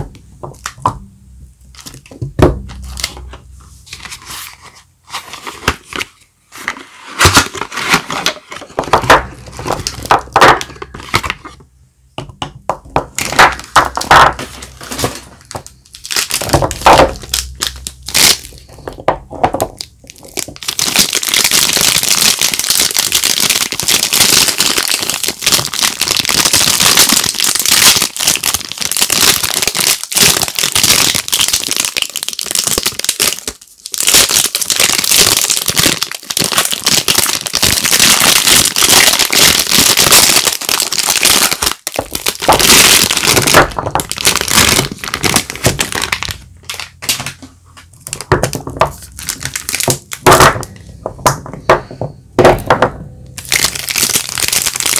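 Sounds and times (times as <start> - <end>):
soap wrapper crinkling: 13.1 - 19.0, 19.6 - 47.4, 48.0 - 51.4, 53.4 - 54.9.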